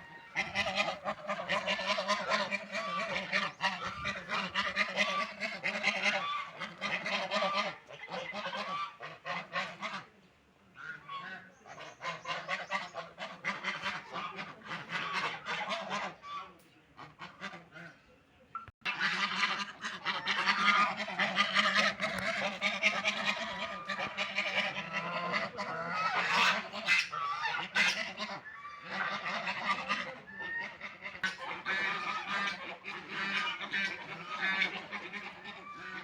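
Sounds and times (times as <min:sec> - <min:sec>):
ducks quacking: 0:00.0 - 0:36.0.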